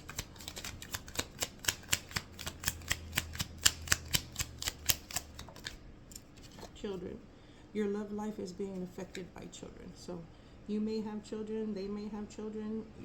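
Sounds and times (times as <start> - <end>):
cards shuffling: 0.0 - 6.8.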